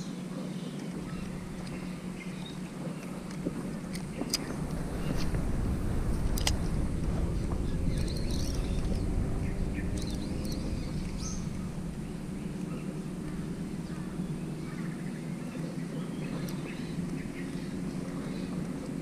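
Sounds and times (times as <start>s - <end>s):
low steady rumble: 0.0s - 19.0s.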